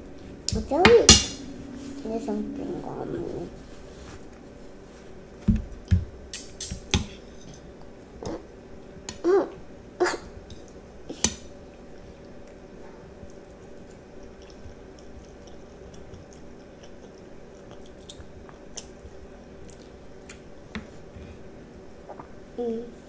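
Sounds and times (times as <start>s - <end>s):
child chewing food: 10.3s - 21.4s.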